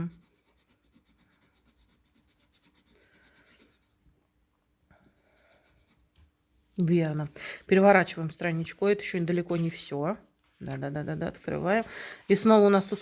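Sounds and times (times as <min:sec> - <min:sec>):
pencil scratching on paper: 0:00.0 - 0:04.2, 0:05.0 - 0:06.4.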